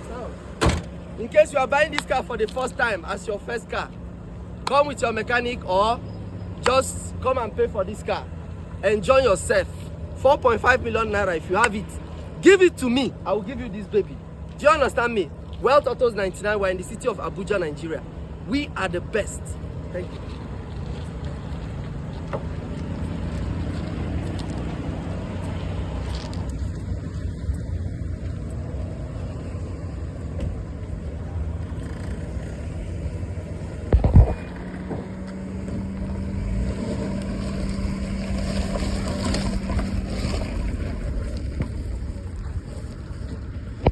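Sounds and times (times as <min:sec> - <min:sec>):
car engine idling: 0:00.0 - 0:43.9
loud thump: 0:00.6 - 0:01.0.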